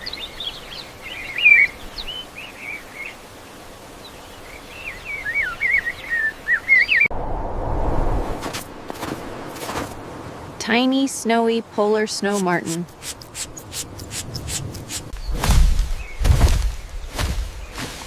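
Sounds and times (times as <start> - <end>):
steady background hiss: 0.0 - 7.5
loud rushing noise: 7.1 - 9.5.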